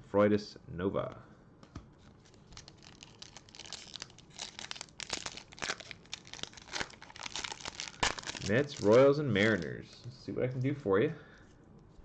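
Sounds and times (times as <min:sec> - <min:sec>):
foil wrapper tearing and crinkling: 0:02.2 - 0:09.7.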